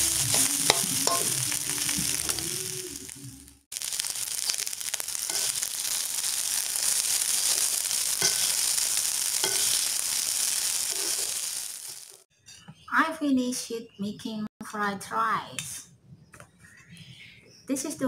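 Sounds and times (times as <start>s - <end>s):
rice sizzling in a wok: 0.0s - 12.3s
metal spatula scraping pan: 8.2s - 8.6s, 9.4s - 9.8s.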